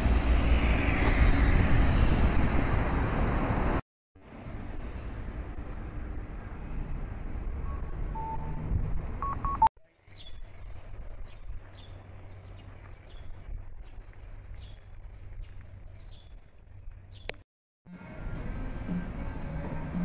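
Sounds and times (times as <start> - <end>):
street traffic: 0.0 - 9.7, 15.0 - 20.0
bird chirps: 7.6 - 13.3
short electronic beeps: 7.7 - 9.7.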